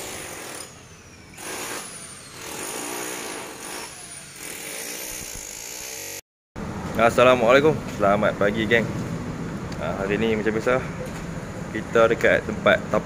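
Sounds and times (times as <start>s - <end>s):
power tool running in bursts: 0.0s - 6.2s.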